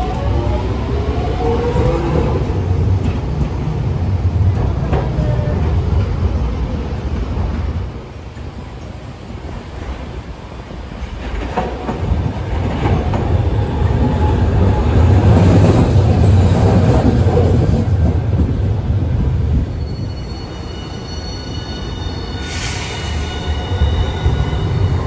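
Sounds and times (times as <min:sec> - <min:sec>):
streetcar rumbling past: 0:00.0 - 0:25.0
faint high-pitched squeal: 0:19.7 - 0:25.0.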